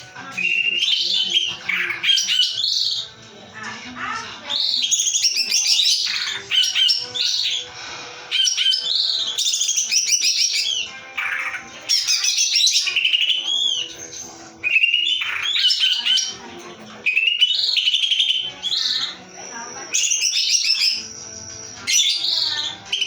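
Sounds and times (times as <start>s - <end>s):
bird singing rapid trills: 0.0s - 3.1s, 4.5s - 7.7s, 8.4s - 16.4s, 17.1s - 23.0s.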